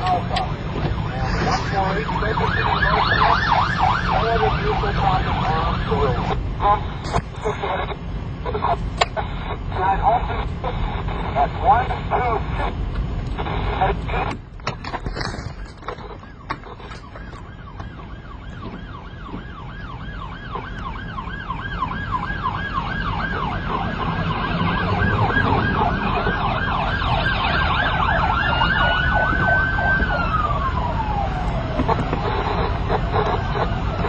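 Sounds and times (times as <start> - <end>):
police siren yelp: 0.0 - 12.7, 15.4 - 34.0
engine and road noise: 0.0 - 34.0
siren tone gliding down: 0.8 - 6.4, 16.2 - 34.0.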